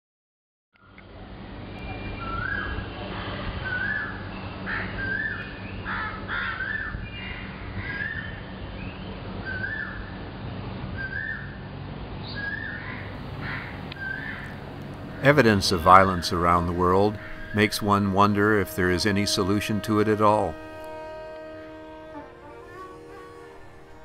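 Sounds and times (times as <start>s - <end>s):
other bird calls: 12.4s - 19.8s
bird short rising call: 13.0s - 18.7s
steady low hum: 13.0s - 24.0s.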